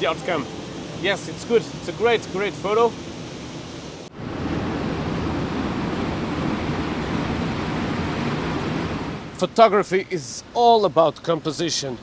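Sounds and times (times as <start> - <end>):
rush of falling water: 0.0 - 9.5.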